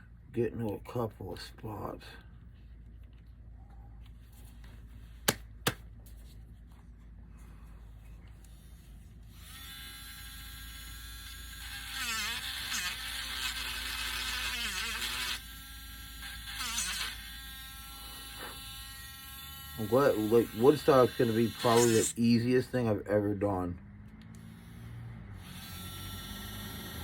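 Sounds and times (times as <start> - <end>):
rotary tool whining: 20.2 - 22.1.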